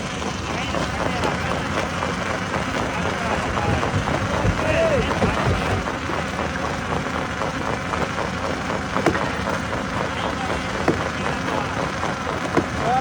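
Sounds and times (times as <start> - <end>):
stone crusher machine rumbling: 0.0 - 13.0
sharp knocks: 9.0 - 9.6, 10.7 - 13.0.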